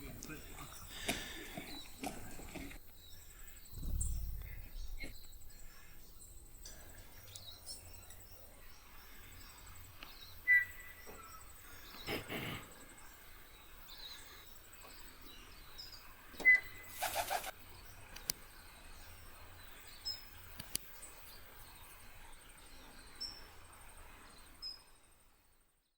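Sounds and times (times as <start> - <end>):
birds calling and chirping: 0.0 - 24.9
brief whooshing noises: 3.7 - 5.5.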